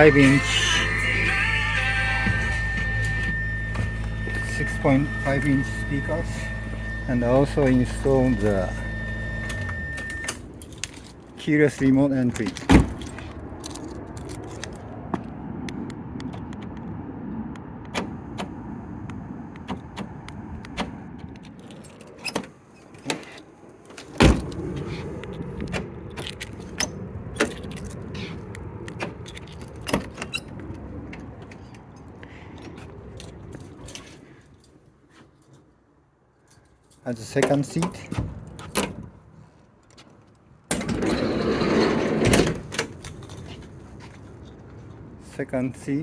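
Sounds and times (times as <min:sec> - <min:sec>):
low background hum: 0:00.0 - 0:15.6
keys jangling: 0:29.2 - 0:30.4.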